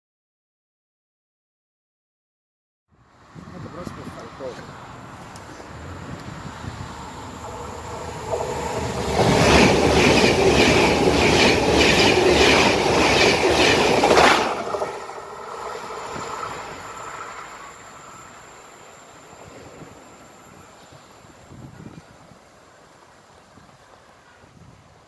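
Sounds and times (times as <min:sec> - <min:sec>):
high-speed train wheels clattering: 0:06.2 - 0:20.8.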